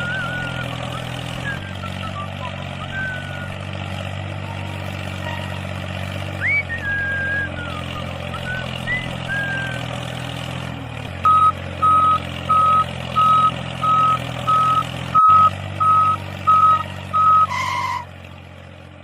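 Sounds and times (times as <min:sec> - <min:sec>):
vehicle reversing alarm beeps: 0:00.0 - 0:03.6, 0:11.2 - 0:18.1
engine hum: 0:00.0 - 0:19.0.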